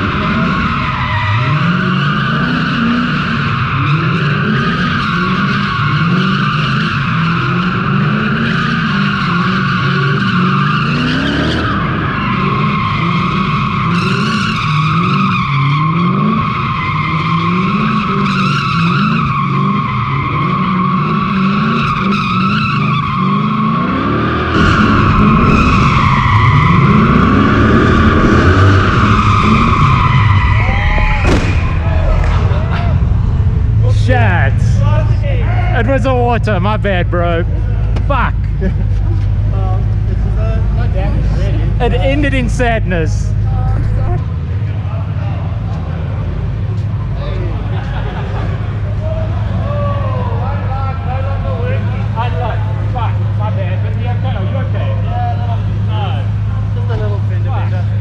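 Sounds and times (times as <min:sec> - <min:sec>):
tyres squealing: 0:00.0 - 0:33.1
car engine revving: 0:00.0 - 0:58.0.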